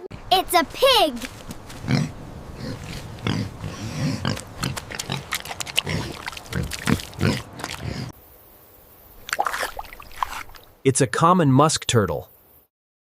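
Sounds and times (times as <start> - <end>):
pig grunting and oinking: 1.8 - 8.2.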